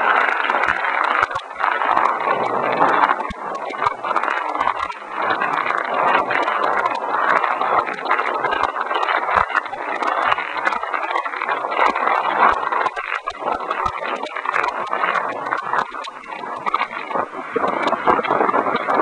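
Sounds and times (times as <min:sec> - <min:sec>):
raindrops clicking on microphone: 0:00.0 - 0:19.0
strong wind: 0:00.0 - 0:19.0
heavy rain: 0:13.4 - 0:19.0.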